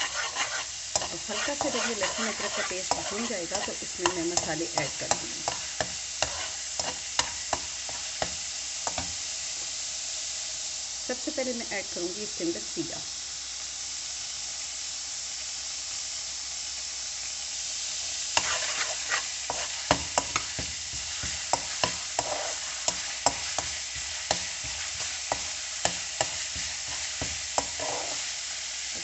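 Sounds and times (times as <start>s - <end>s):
spatula clicking while stirring: 0.0s - 9.1s, 18.4s - 28.2s
seeds sizzling in hot oil: 0.0s - 29.0s.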